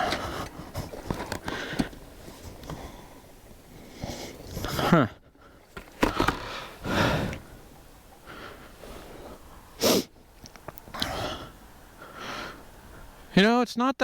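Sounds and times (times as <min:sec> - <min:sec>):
man breathing heavily: 0:00.0 - 0:10.2, 0:10.9 - 0:13.3
sharp sniff-like breath: 0:08.8 - 0:10.1.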